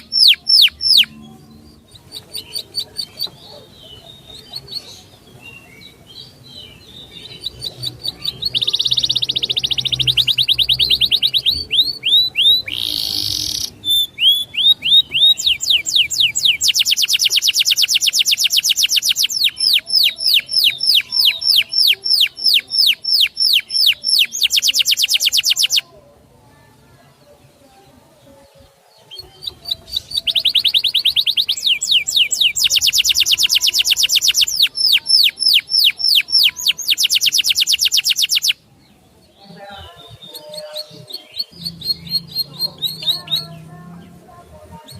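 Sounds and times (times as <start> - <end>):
songbird singing and trilling: 0.0 - 44.9.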